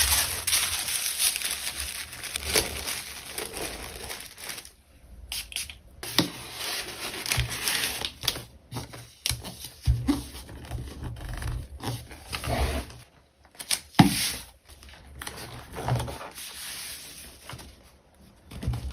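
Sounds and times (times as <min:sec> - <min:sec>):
plastic wrap and paper crinkling: 0:00.0 - 0:09.3.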